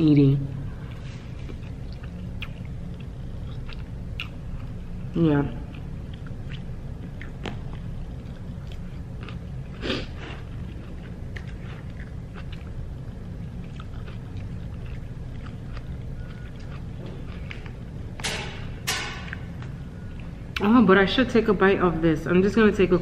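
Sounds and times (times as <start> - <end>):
low room hum: 0.0 - 23.0
person chewing food: 0.7 - 18.2.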